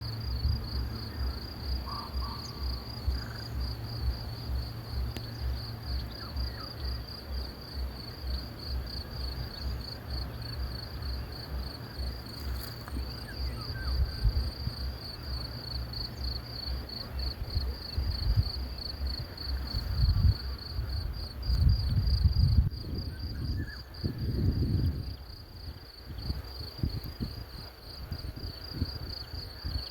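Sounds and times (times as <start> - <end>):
low rhythmic pulsing: 0.0 - 21.4
crickets chirping: 0.0 - 29.9.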